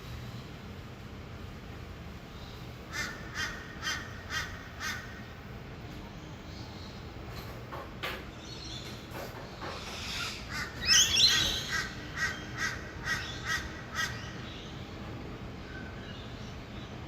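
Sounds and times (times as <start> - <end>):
distant traffic hum: 0.0 - 17.0
harsh rasping bird calls: 2.4 - 5.3, 8.4 - 14.9.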